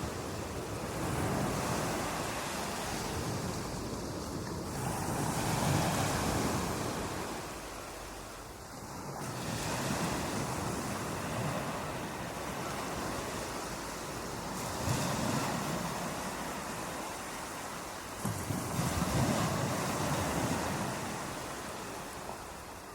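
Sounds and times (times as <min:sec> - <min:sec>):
ocean waves breaking on beach: 0:00.0 - 0:22.9.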